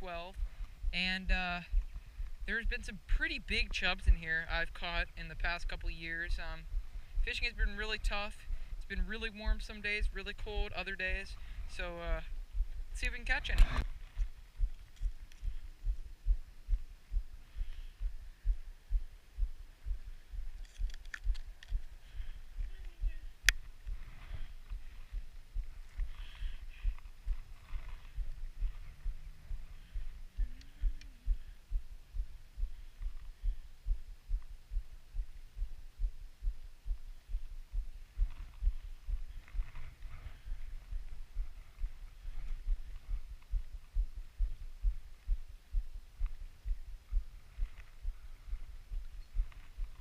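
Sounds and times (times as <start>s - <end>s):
dull low thumps: 0.0s - 50.0s
faint rustling: 10.5s - 34.6s.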